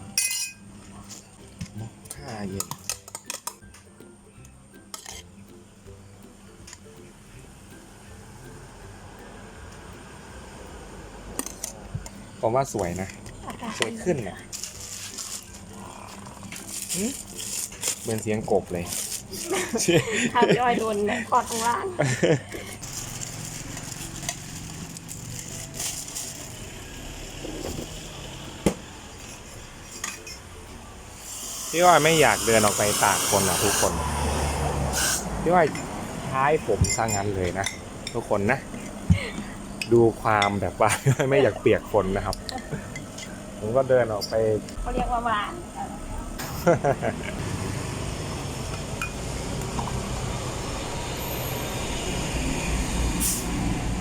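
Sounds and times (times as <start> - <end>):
road traffic: 5.2 - 54.0
vehicle passing: 22.8 - 29.7, 33.4 - 38.5, 46.2 - 54.0.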